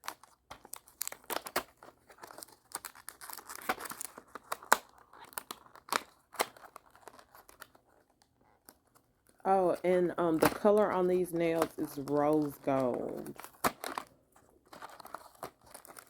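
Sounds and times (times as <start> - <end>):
packaging crinkling and tearing: 0.0 - 16.0.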